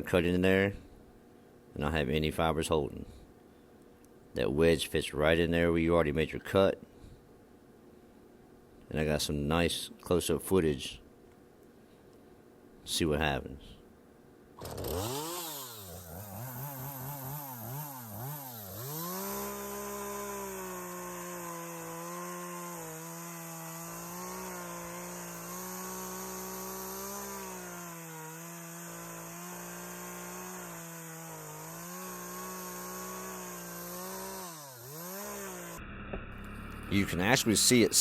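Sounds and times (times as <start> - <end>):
chainsaw cutting tree trunk: 14.6 - 38.0.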